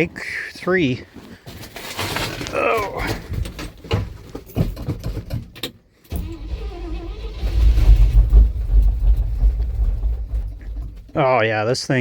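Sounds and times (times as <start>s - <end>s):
engine sputtering and starting: 6.1s - 11.2s.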